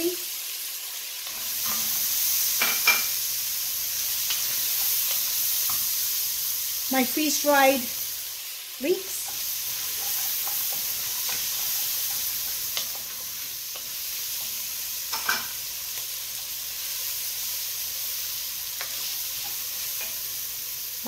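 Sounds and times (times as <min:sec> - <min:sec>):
vegetables sizzling in oil: 0:00.0 - 0:21.0
wooden spoon stirring: 0:09.2 - 0:14.5.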